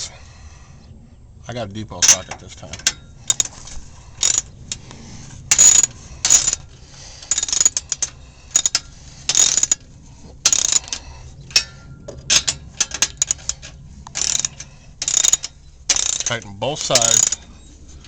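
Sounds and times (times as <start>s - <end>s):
hand ratchet clicking: 2.8s - 9.8s, 10.4s - 17.5s.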